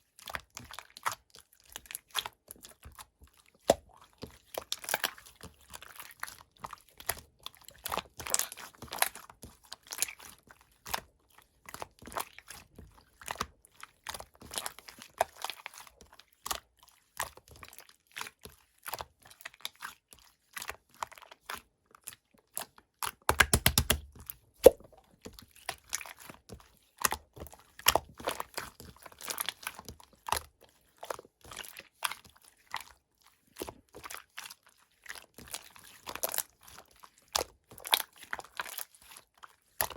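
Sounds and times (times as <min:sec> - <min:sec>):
slime clicks and pops: 0:23.3 - 0:24.9
slime squished by hand: 0:23.3 - 0:25.0.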